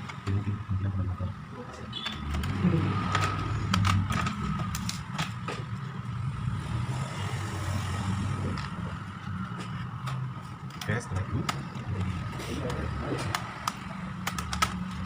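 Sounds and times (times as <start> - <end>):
plastic laptop parts clicking: 1.9 - 5.7, 8.5 - 15.0.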